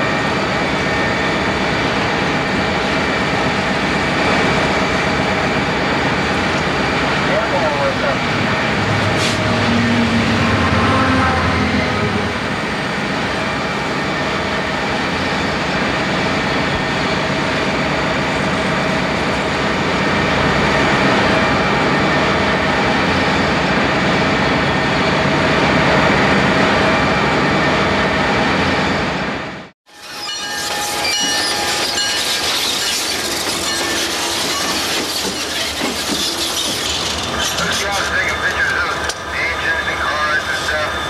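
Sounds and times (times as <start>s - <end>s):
diesel locomotive engine: 0.0s - 41.0s
train wheels squealing: 29.9s - 41.0s.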